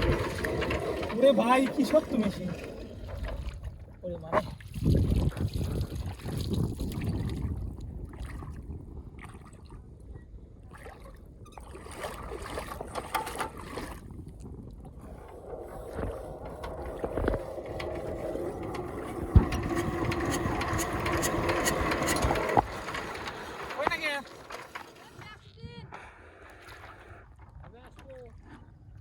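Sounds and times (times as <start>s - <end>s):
diesel engine turning over: 0.0s - 3.1s, 16.5s - 25.2s.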